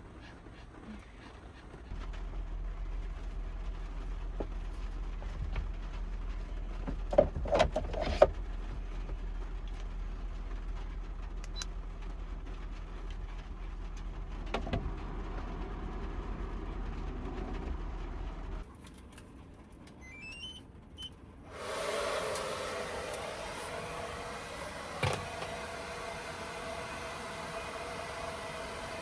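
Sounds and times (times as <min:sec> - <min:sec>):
vehicle engine idling: 0:01.9 - 0:18.7.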